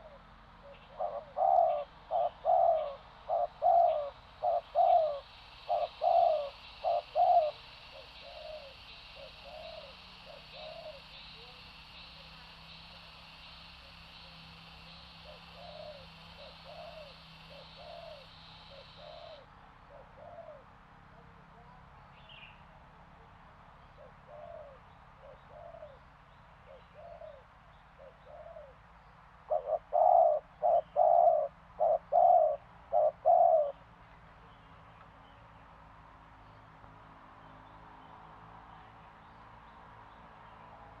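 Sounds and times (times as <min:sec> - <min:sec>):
dove cooing: 0:00.0 - 0:14.4, 0:15.1 - 0:20.6, 0:23.8 - 0:26.0, 0:26.7 - 0:28.8, 0:29.5 - 0:33.8.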